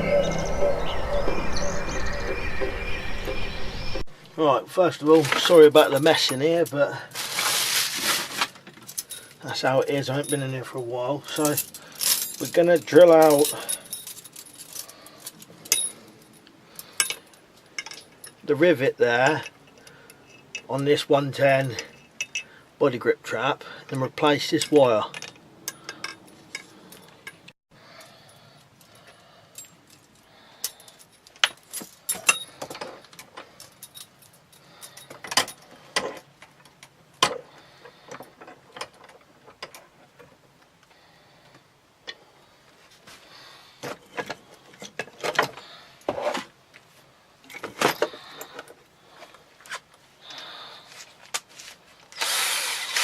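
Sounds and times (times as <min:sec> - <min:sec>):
small metal objects clinking: 0:11.3 - 0:18.4.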